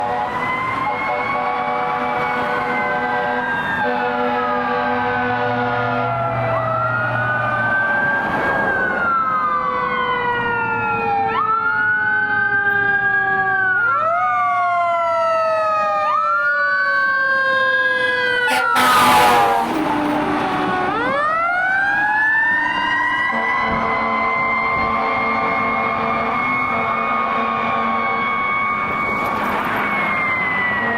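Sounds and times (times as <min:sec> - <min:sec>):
emergency vehicle sirens wailing: 0:00.0 - 0:30.9
short loud horn blast: 0:18.0 - 0:20.8.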